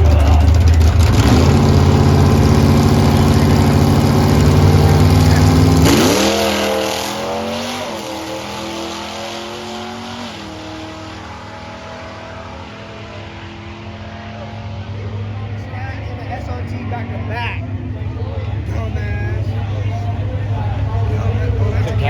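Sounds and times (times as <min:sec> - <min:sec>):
car engine revving and accelerating: 0:00.0 - 0:17.4.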